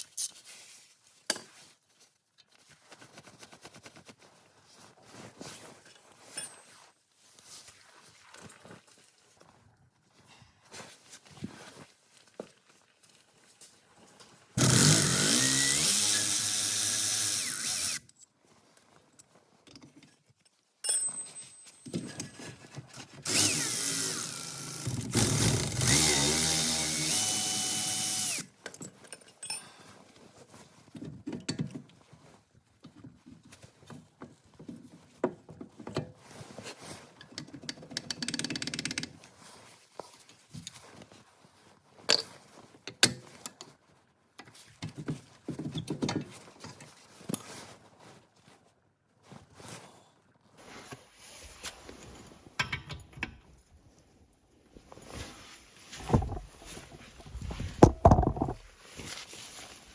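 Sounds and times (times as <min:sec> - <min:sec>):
cordless power drill spinning: 0:14.6 - 0:18.0, 0:23.2 - 0:28.5
tools clicking and knocking: 0:37.2 - 0:39.1, 0:52.6 - 0:53.4, 0:56.0 - 0:56.5, 0:57.8 - 0:58.6.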